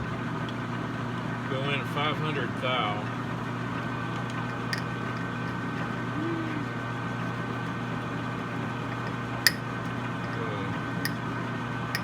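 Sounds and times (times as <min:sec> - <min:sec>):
metal lathe humming: 0:04.3 - 0:06.1.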